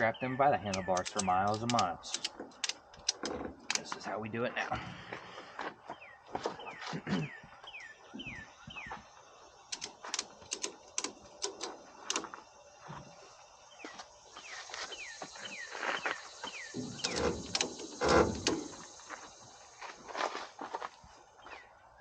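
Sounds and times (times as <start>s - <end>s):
ratchet strap clicking: 0.7s - 3.8s, 9.7s - 12.3s, 16.9s - 18.8s.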